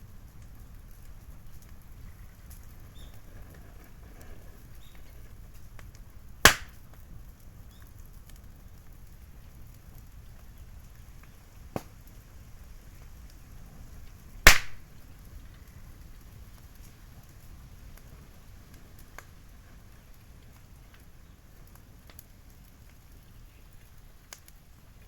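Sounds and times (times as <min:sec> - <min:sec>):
bamboo fire crackling: 0:00.0 - 0:25.0
bamboo cracking loudly: 0:06.5 - 0:06.9, 0:14.5 - 0:14.9.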